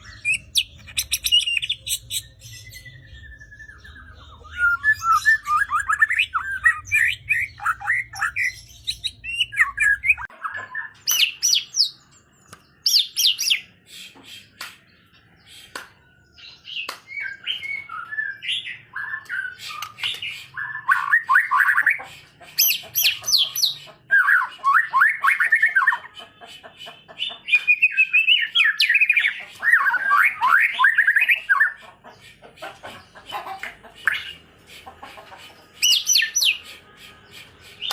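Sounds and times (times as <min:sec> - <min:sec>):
songbird singing: 0:00.0 - 0:21.8.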